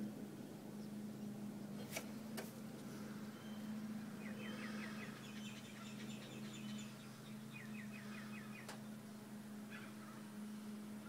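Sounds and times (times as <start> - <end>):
small bird chirping: 3.2 - 9.0.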